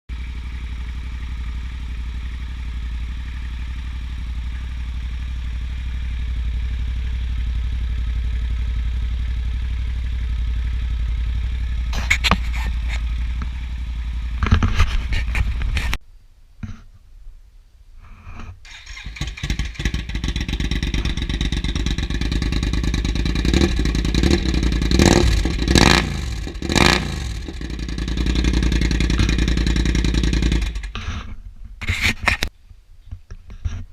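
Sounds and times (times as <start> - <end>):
motorcycle engine idling and revving: 0.0 - 16.0, 18.6 - 32.5.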